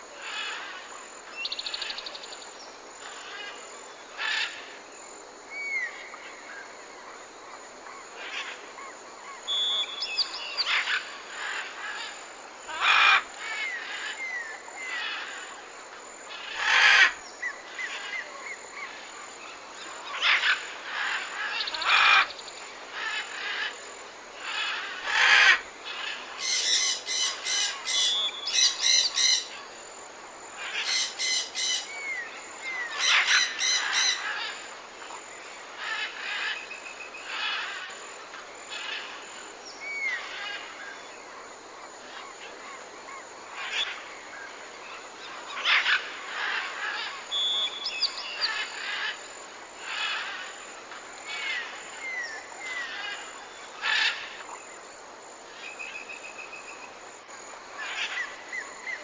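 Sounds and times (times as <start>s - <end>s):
whistled bird notes: 9.5s - 10.6s.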